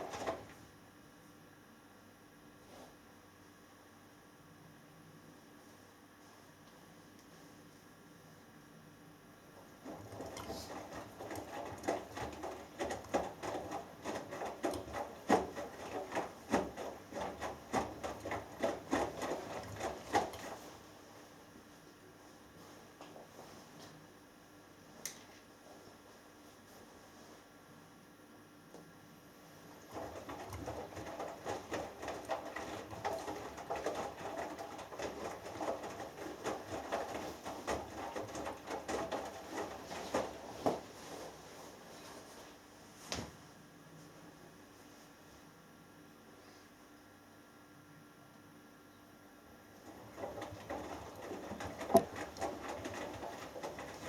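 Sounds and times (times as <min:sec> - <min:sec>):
washing machine drum tumbling: 0:09.8 - 0:20.6, 0:29.8 - 0:40.9, 0:49.8 - 0:54.0
faint hum: 0:43.5 - 0:49.9.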